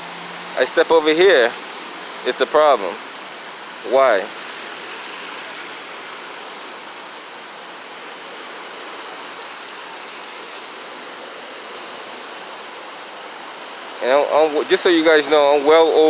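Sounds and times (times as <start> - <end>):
traffic rushing: 0.0 - 6.9.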